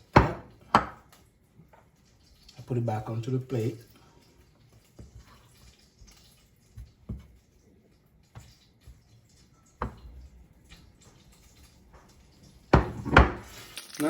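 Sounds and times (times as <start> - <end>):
dishes tapping on kitchen counter: 0.1 - 1.1, 9.8 - 10.2, 12.7 - 13.5.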